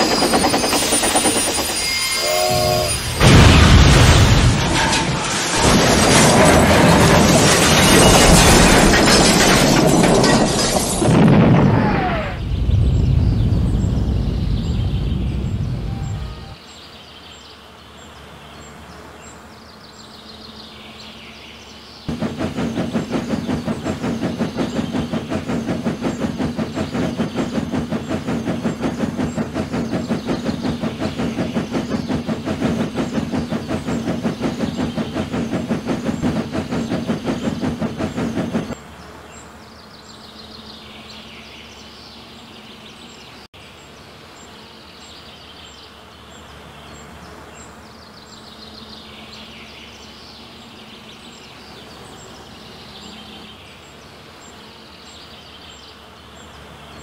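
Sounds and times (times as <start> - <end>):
train clattering on rails: 0.0 - 11.8, 22.0 - 38.9.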